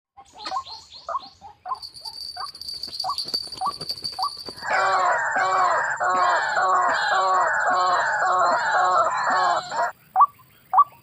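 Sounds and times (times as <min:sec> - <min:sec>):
chorus of bird calls: 0:00.2 - 0:11.0
bird calling in rising notes: 0:04.6 - 0:09.9.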